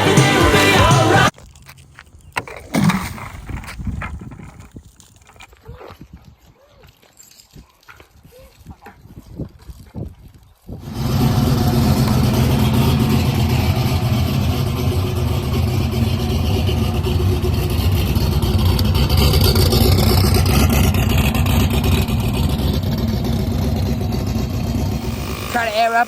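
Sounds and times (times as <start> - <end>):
race car engine at high revs: 10.8 - 26.0.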